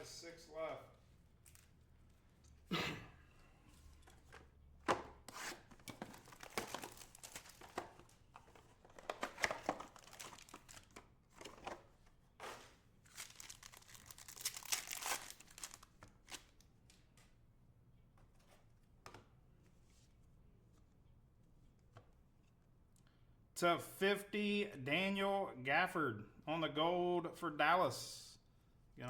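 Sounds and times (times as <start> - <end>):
card pack wrappers tearing and crinkling: 6.0 - 7.9, 9.2 - 11.0, 13.1 - 16.6
sharp wrapper snaps: 13.3 - 16.5.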